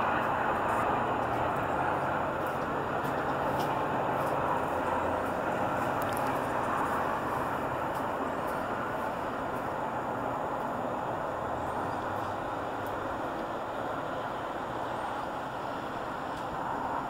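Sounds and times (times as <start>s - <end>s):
train rumbling away: 0.0s - 17.0s.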